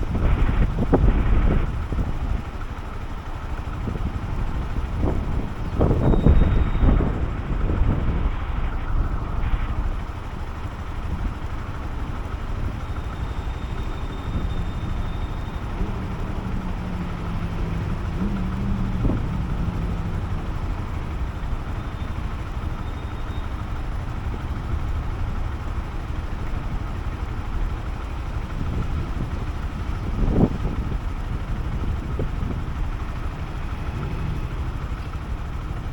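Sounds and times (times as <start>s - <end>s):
motorcycle engine running: 0.0s - 35.9s
faint humming tone: 3.6s - 25.2s.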